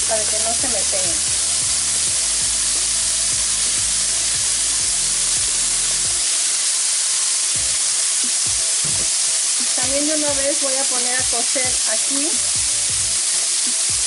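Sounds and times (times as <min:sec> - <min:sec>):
chicken frying in oil: 0:00.0 - 0:14.0.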